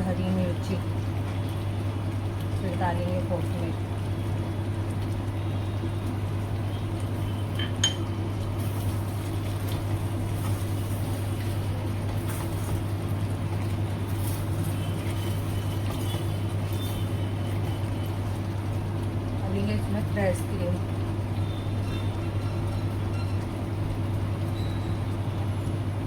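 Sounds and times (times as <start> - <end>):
spoon clinking against pot: 7.6 - 8.1.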